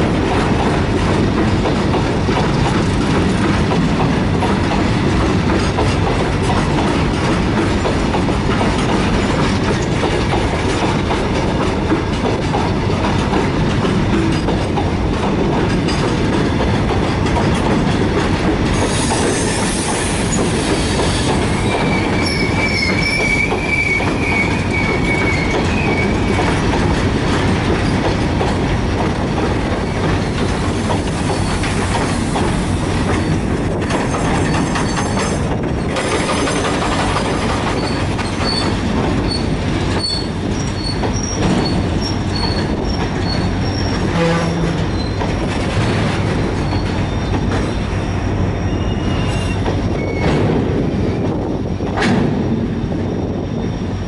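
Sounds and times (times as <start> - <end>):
wheel squealing against rail: 18.7 - 26.7, 29.8 - 54.0.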